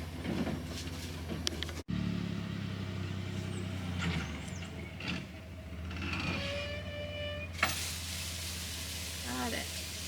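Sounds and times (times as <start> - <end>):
truck engine running: 0.0 - 10.0.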